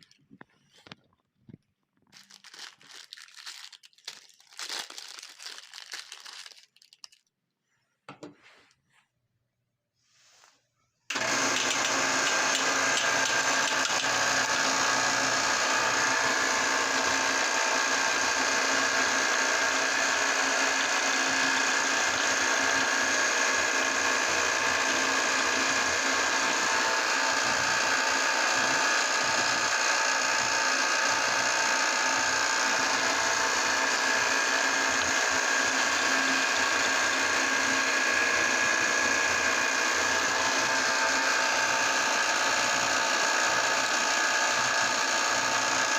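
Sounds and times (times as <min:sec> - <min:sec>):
electric grinder motor whining: 0:11.1 - 0:45.9.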